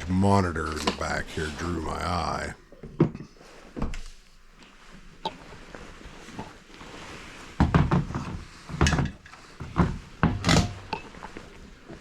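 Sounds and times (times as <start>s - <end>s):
objects knocking and thunking: 7.6s - 11.4s.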